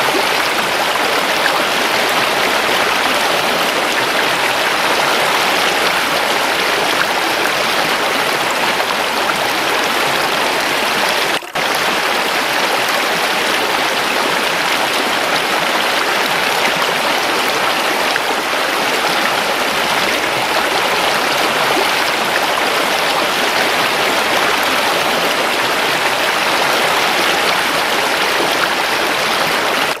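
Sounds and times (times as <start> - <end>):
running water: 0.0 - 30.0.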